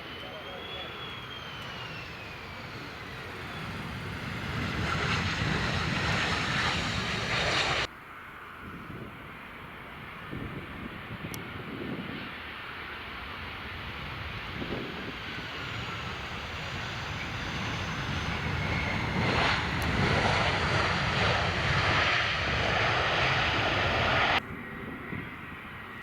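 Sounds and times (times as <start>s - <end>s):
engine rumble: 0.0s - 7.9s, 13.0s - 24.5s
jet engines passing: 0.0s - 7.9s, 8.9s - 26.0s
wind on microphone: 1.5s - 7.9s, 13.6s - 26.0s.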